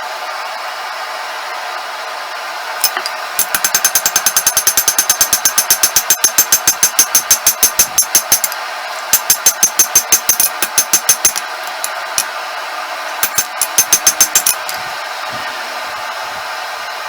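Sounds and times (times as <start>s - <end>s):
forge blower noise: 2.7s - 17.0s
hammer striking steel on anvil: 2.8s - 12.3s, 13.2s - 14.8s.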